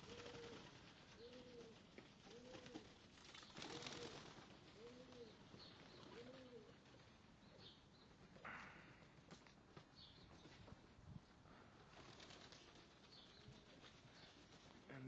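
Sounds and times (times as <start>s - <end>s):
pigeons cooing: 0.0s - 3.0s, 3.6s - 7.0s.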